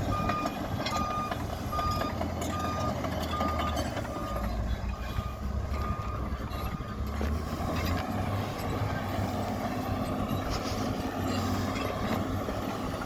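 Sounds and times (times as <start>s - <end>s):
diesel engine running: 0.0s - 13.0s
reverse alarm beeping: 0.1s - 7.0s.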